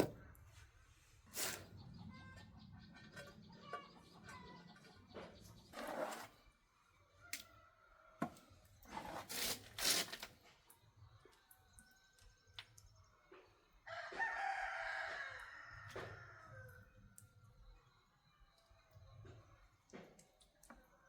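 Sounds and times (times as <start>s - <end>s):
scraping and knocking noises: 0.0s - 0.2s, 1.4s - 6.4s, 8.2s - 10.5s
rooster crowing: 13.9s - 16.9s.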